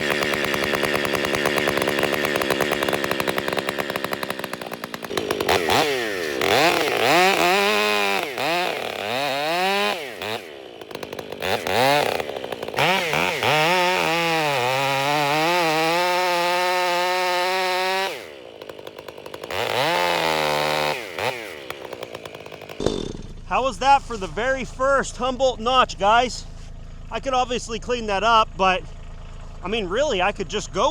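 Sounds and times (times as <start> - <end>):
chainsaw cutting tree: 0.0 - 24.4.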